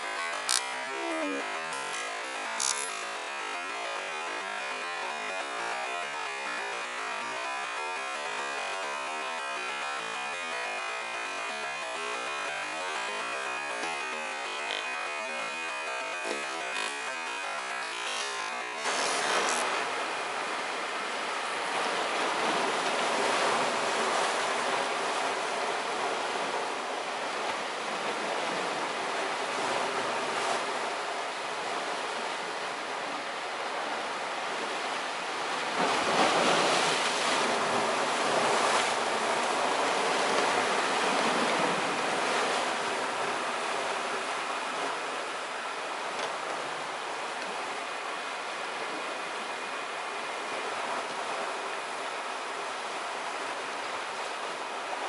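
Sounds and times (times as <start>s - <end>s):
sea waves on rocky shore: 0.0s - 32.8s, 34.5s - 45.4s.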